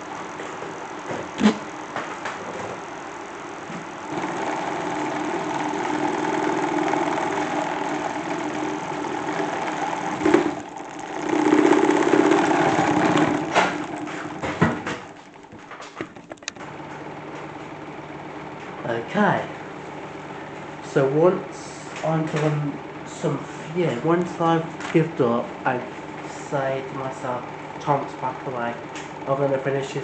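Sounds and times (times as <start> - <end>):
plastic drum spinning with motor hum: 0.0 - 30.0
clicks: 11.5 - 17.7.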